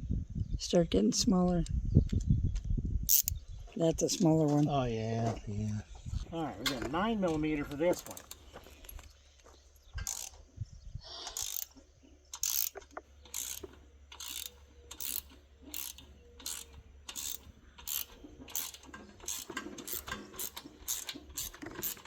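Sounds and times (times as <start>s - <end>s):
ratchet wrench clicking: 3.1s - 3.4s, 10.0s - 10.3s, 11.4s - 11.7s, 12.3s - 22.0s.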